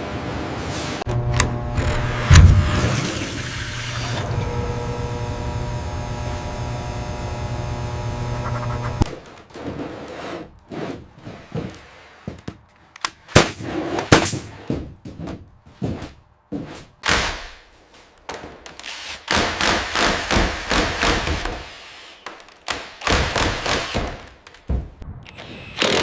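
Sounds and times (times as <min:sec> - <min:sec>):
machine humming: 0:01.1 - 0:09.1.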